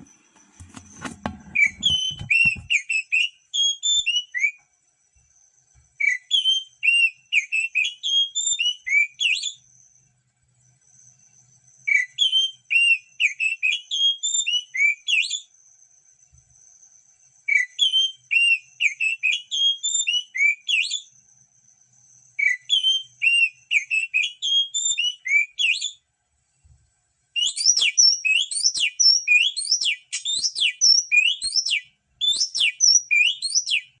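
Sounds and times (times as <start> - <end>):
bird singing fluty phrases: 27.4 - 34.0.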